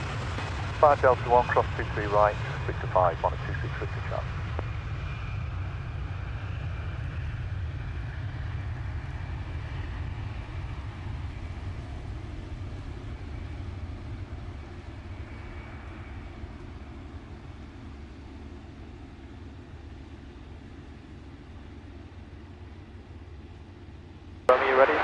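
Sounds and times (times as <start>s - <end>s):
jet engines rumbling: 0.0s - 25.0s
faint high whine: 14.3s - 25.0s.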